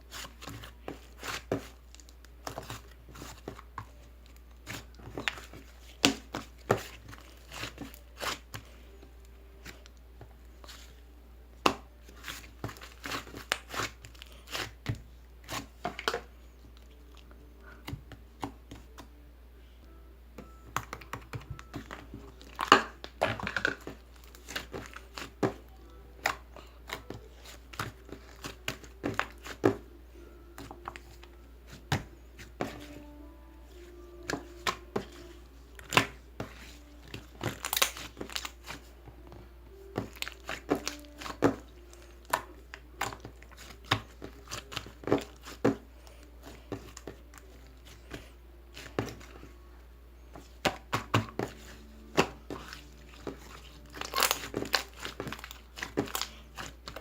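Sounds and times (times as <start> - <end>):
crinkling and tearing: 37.2 - 38.9, 52.4 - 57.0.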